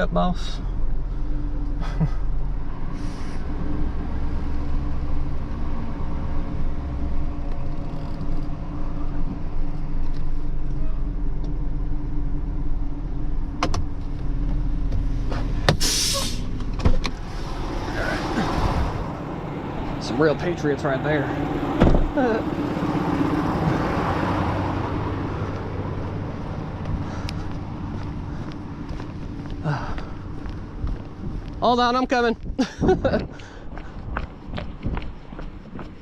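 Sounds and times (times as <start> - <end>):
tow truck engine running: 0.0 - 31.6
short loud hiss: 15.8 - 16.5.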